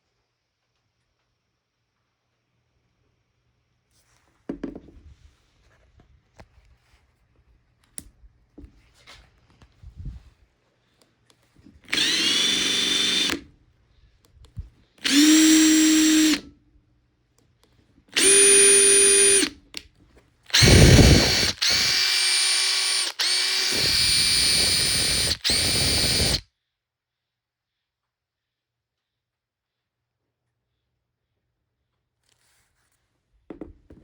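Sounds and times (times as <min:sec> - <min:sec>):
impact driver motor whining: 0:11.8 - 0:13.5, 0:15.0 - 0:16.5, 0:18.1 - 0:19.6, 0:20.5 - 0:26.4.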